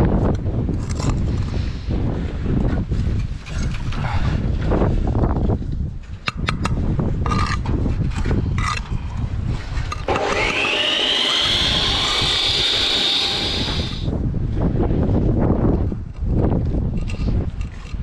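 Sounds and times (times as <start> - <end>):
wind on microphone: 0.0 - 18.0
tools clicking and scraping: 0.8 - 1.6, 6.2 - 9.0, 16.1 - 18.0
power tool motor whine: 10.0 - 14.1.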